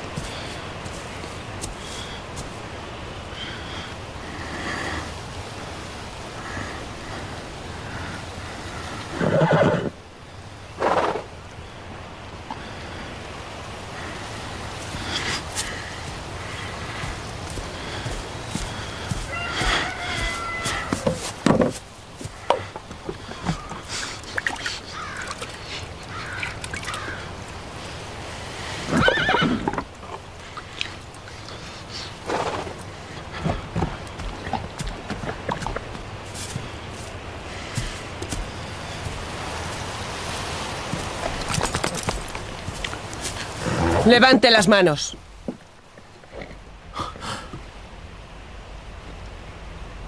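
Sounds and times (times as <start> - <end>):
water splashing: 12.4 - 31.8, 33.0 - 44.8.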